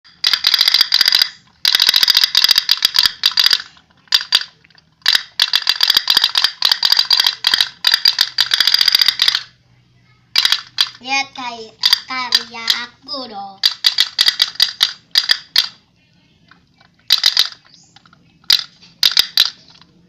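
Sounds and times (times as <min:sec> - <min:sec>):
toy boat metallic ticking: 0:00.1 - 0:09.5, 0:10.4 - 0:11.0, 0:11.8 - 0:12.9, 0:13.6 - 0:15.8, 0:17.1 - 0:17.6, 0:18.4 - 0:19.8.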